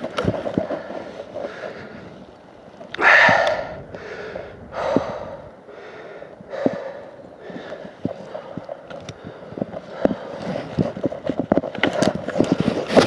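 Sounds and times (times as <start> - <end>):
heavy breathing: 3.0 - 10.7.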